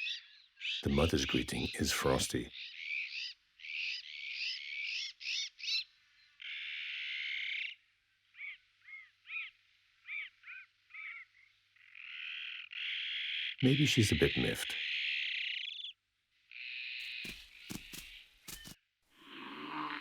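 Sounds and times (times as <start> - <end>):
harsh rasping animal calls: 17.0 - 20.0.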